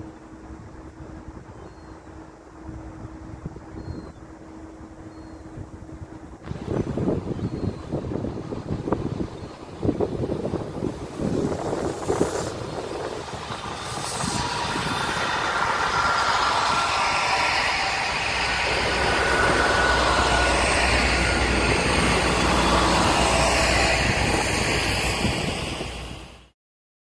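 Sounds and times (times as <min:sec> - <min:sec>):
diesel train rumbling past: 0:00.0 - 0:26.6
wind thumps on microphone: 0:06.4 - 0:16.8
thin whine: 0:09.0 - 0:26.5.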